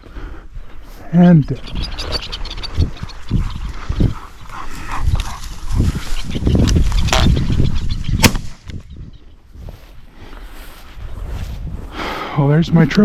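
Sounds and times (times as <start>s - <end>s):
low rumble of wind: 0.0s - 13.0s
shotgun shot: 8.2s - 8.6s.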